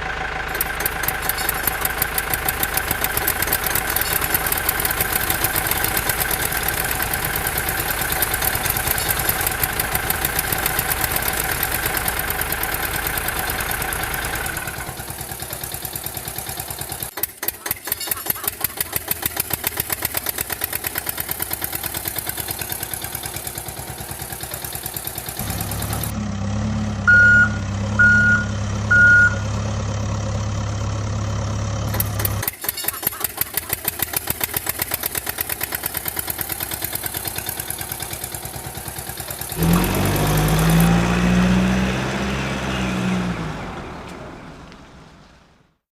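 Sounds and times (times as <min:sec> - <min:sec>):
vehicle engine chugging: 0:00.0 - 0:45.5
short high beeps: 0:27.1 - 0:29.5.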